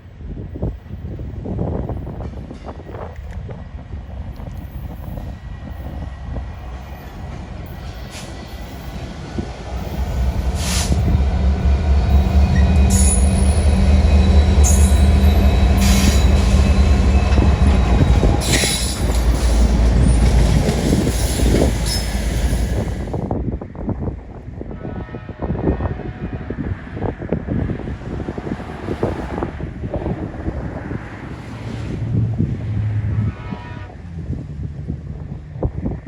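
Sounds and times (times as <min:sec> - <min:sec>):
diesel train passing: 0:00.0 - 0:36.0
high wheel squeals: 0:06.9 - 0:23.1.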